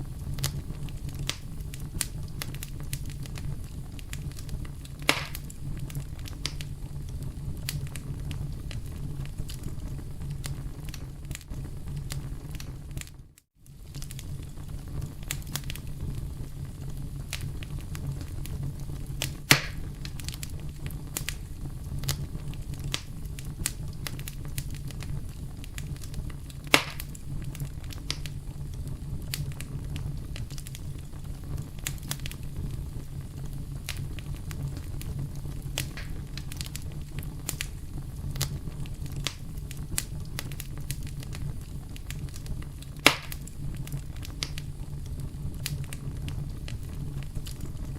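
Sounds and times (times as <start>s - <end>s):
campfire crackling: 0.0s - 47.9s
loud fire pops: 0.0s - 47.9s.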